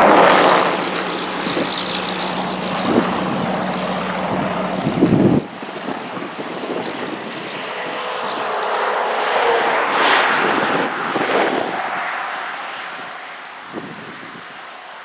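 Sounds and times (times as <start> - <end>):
vehicle passing by: 0.0 - 5.6.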